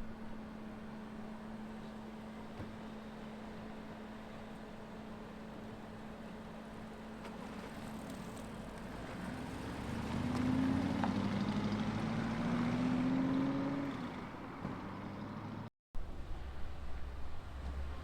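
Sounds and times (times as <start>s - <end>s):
car driving past slowly: 7.1s - 18.0s.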